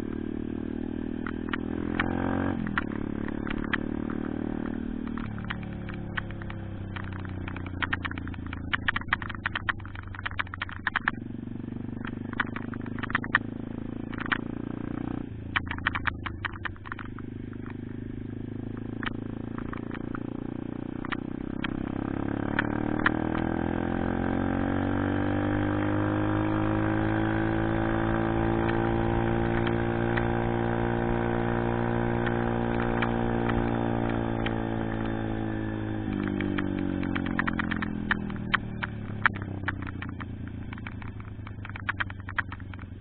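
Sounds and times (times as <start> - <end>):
small motorbike engine revving: 0.0 - 9.4, 11.1 - 43.0
clicks: 1.2 - 11.2, 12.0 - 14.6, 15.5 - 18.0, 18.7 - 20.3, 21.0 - 21.8, 27.0 - 43.0.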